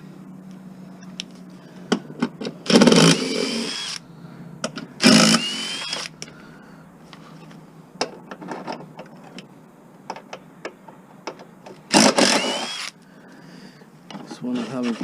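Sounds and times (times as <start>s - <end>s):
power driver motor whine: 2.6s - 4.1s, 5.0s - 6.2s, 11.9s - 13.0s.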